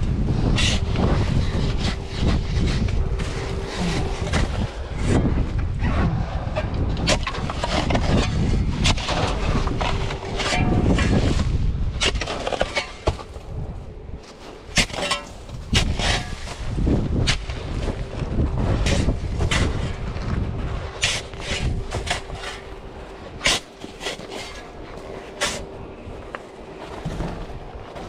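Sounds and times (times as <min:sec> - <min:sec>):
wind on microphone: 0:00.0 - 0:26.3
tool striking icy snow: 0:14.7 - 0:17.6, 0:23.4 - 0:25.6.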